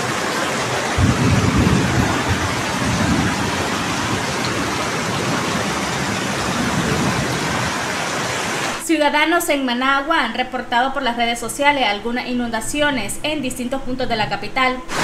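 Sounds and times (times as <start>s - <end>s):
heavy rain hiss: 0.0s - 8.8s
running floodwater: 0.0s - 8.8s
low rumbles: 0.9s - 7.8s.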